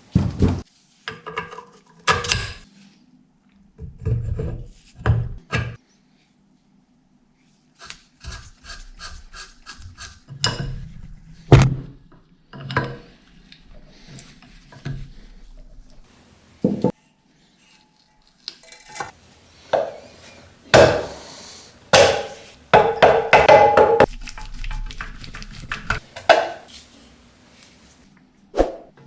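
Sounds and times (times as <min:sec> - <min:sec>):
scrapes knocks and rubs on metal parts: 0:19.0 - 0:24.1, 0:25.9 - 0:28.0.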